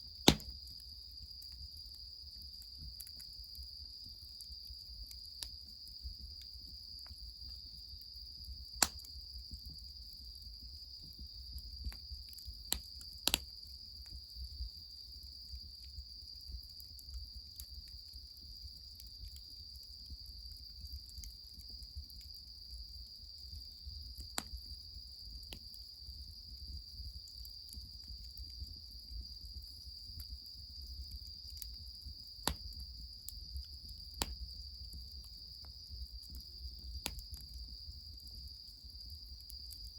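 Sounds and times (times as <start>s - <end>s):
crickets chorus: 0.0s - 39.9s
wood fire snaps: 0.2s - 0.7s, 8.8s - 9.1s, 12.7s - 13.5s, 32.4s - 32.8s, 34.2s - 34.4s, 37.0s - 37.5s.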